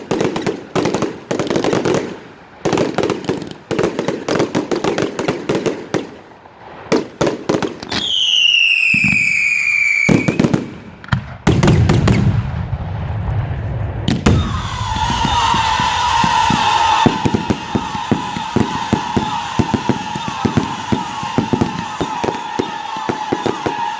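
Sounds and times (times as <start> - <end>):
fireworks bangs and crackles: 0.0 - 23.9
whistling firework shell: 7.8 - 12.5, 13.2 - 23.9.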